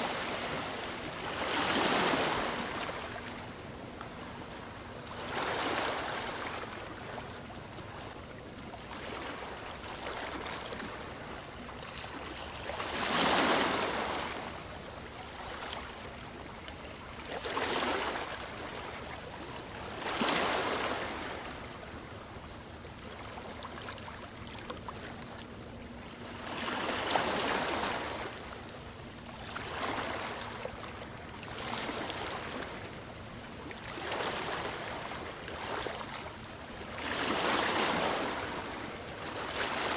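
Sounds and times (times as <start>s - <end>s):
ocean waves breaking: 0.0s - 3.4s.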